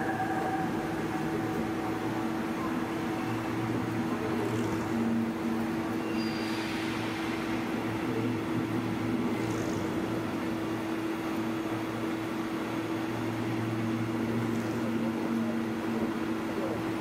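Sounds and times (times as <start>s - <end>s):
train humming: 0.0s - 16.9s.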